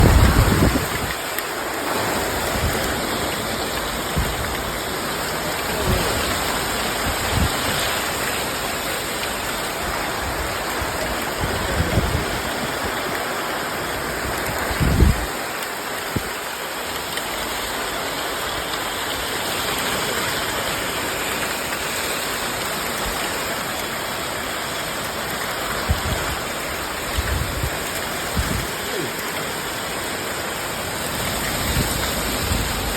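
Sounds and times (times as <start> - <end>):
wind buffeting microphone: 0.0 - 1.2, 10.3 - 12.9, 14.3 - 15.4, 25.8 - 28.8
heavy rain falling: 0.0 - 32.9.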